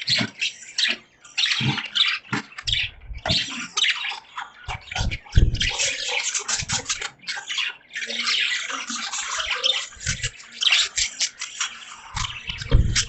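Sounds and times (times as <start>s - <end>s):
budgies chirping and chattering: 0.0s - 13.0s
dull thumps: 12.2s - 13.0s.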